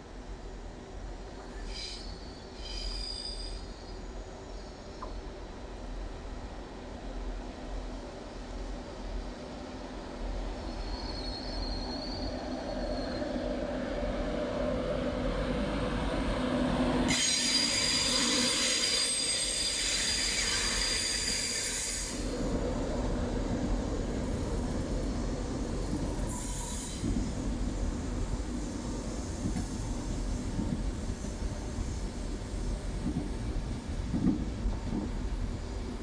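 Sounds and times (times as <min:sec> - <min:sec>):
train rumbling past on track: 0:00.0 - 0:36.0
high-pitched wheel squeal: 0:10.7 - 0:13.4, 0:17.1 - 0:22.2.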